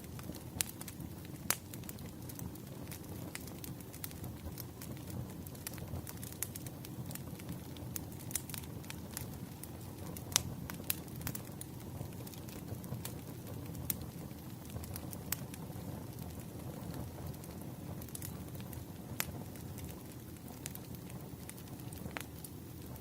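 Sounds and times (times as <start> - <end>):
firewood crackling and popping: 0.0 - 23.0
low rumble of flames: 0.0 - 23.0.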